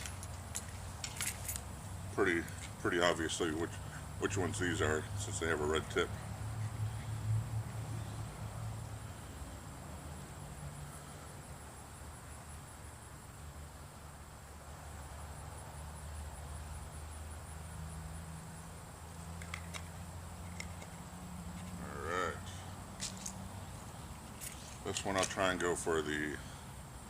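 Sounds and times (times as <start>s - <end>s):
insect chirring: 14.9s - 27.0s.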